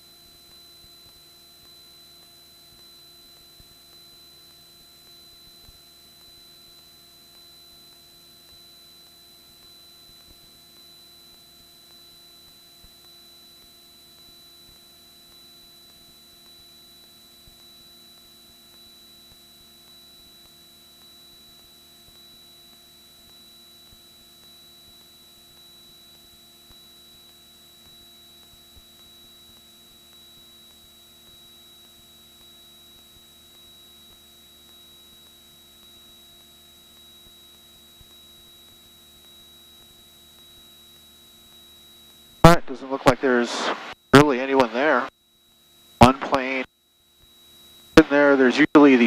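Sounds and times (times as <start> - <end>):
electrical hum and hiss: 42.4 - 45.1, 46.0 - 46.7, 47.9 - 49.0
thin high whine: 42.4 - 45.1, 45.9 - 46.7, 47.7 - 49.0.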